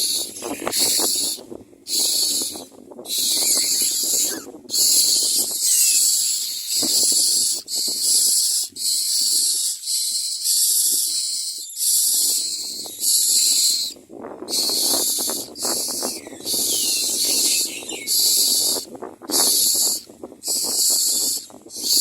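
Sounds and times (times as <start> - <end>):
nestlings giving harsh hissing calls: 0.0 - 22.0.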